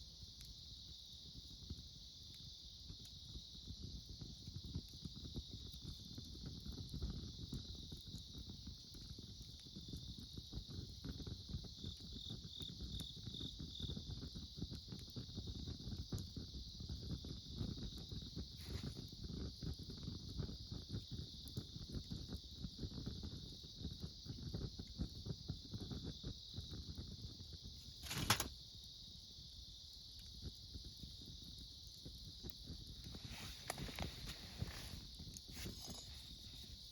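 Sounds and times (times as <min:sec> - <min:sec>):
campfire crackling: 0:00.0 - 0:36.9
insect chirps: 0:00.0 - 0:36.9
insects chorus: 0:11.6 - 0:15.4, 0:25.1 - 0:36.9.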